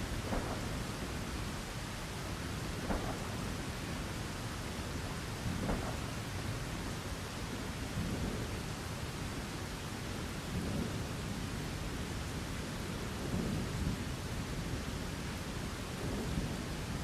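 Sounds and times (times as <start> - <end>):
thunder rumbling: 0.0 - 7.0
steady rain: 0.0 - 17.0.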